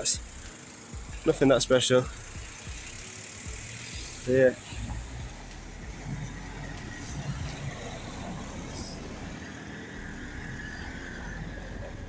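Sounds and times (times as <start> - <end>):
cars passing: 0.0 - 12.0.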